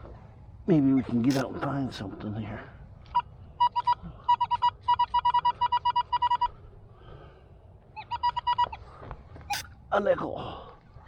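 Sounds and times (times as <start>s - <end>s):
metal detector beeping: 3.1s - 6.6s, 8.0s - 8.8s, 9.5s - 9.7s.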